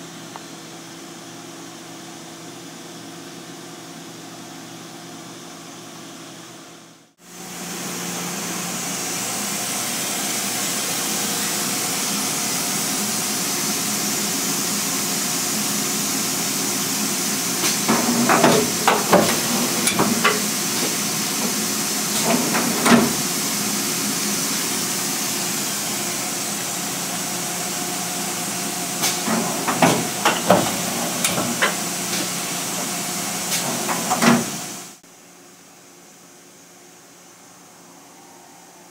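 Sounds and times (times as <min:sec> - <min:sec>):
sharp clicks and knocks: 0:17.8 - 0:21.6, 0:29.3 - 0:31.8.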